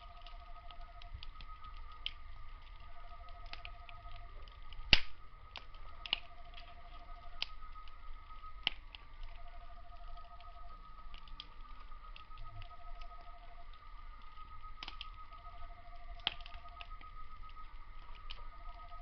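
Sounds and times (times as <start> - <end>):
insect pulsing trill: 0.0 - 19.0
insects droning: 0.0 - 19.0
wood fire crackling and popping: 0.0 - 19.0
loud fire snap: 3.3 - 9.5, 14.2 - 15.4, 16.1 - 18.5.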